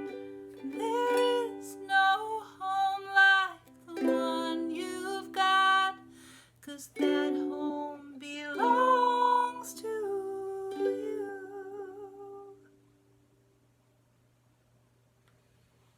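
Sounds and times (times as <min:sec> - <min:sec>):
ukulele strumming chords: 0:00.0 - 0:06.3, 0:07.0 - 0:12.2
faint low hum: 0:00.0 - 0:15.9.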